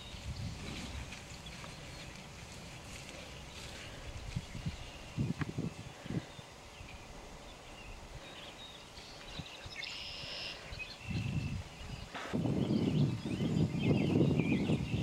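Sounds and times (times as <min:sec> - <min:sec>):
birds singing and calling: 0:00.0 - 0:15.0.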